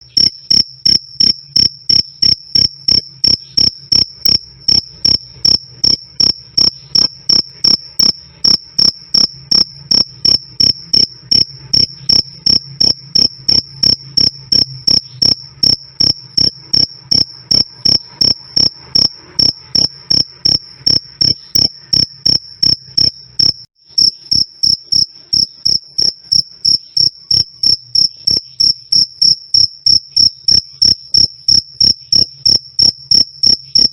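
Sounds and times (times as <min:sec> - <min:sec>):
cricket chirping: 0:00.0 - 0:33.9.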